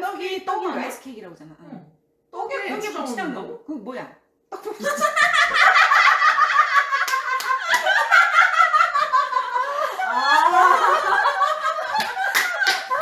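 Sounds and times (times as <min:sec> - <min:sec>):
women laughing: 0:04.6 - 0:13.0.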